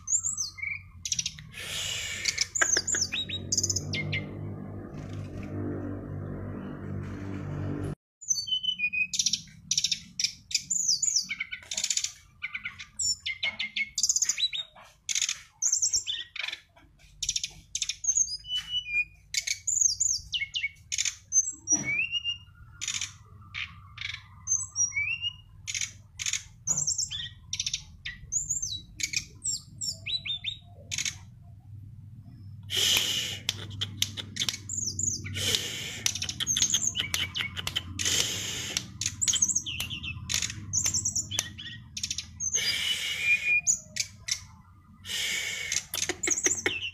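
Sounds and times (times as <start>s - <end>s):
songbird singing chirps: 0.0s - 7.2s, 8.2s - 46.9s
bird harsh rapid chatter: 1.1s - 4.2s, 32.7s - 46.9s.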